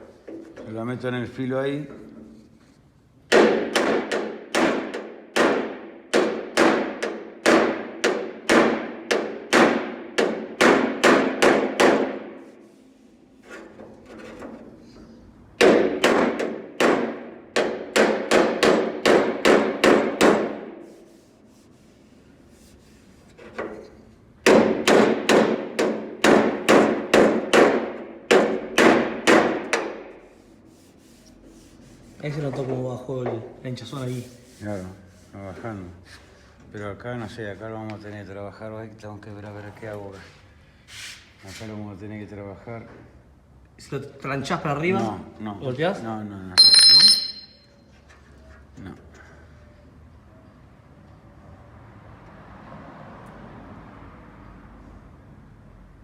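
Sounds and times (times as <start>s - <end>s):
hammer ringing on steel: 46.6s - 47.7s.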